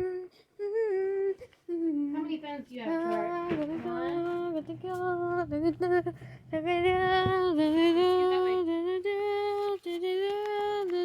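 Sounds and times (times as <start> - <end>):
high voice humming: 0.0 - 2.2, 3.0 - 9.1.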